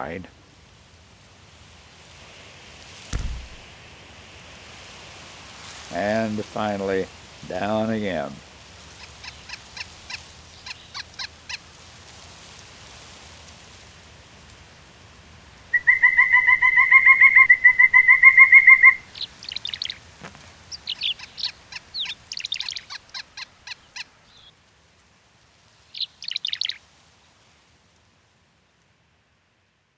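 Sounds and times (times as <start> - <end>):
woodpecker calling: 9.0 - 11.5, 15.7 - 20.0, 20.7 - 24.5, 26.0 - 26.8
high bird chirps: 15.8 - 20.0, 20.8 - 23.0, 26.0 - 26.8.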